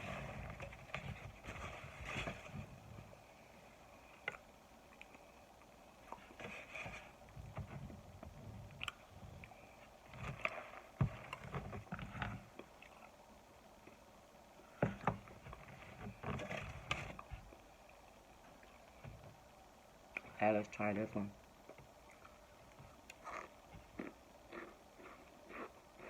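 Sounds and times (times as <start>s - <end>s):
chewing and crunching: 4.2s - 7.9s, 8.6s - 13.2s, 22.0s - 26.0s.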